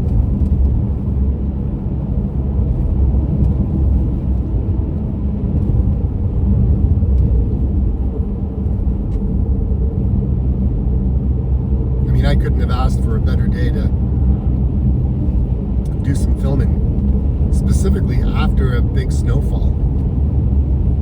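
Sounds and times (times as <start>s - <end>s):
car driving road rumble: 0.0s - 21.0s.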